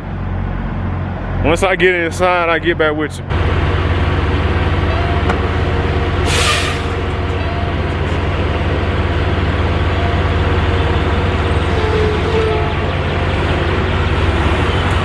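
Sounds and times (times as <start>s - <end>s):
diesel engine running: 0.0s - 15.0s
air hiss: 6.2s - 6.9s.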